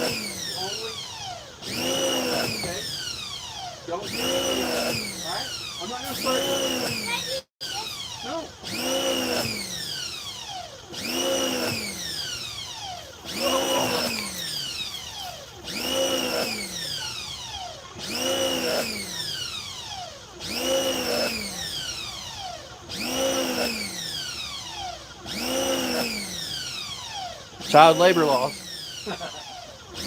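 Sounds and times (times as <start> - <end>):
wailing alarm tone: 13.3 - 14.5.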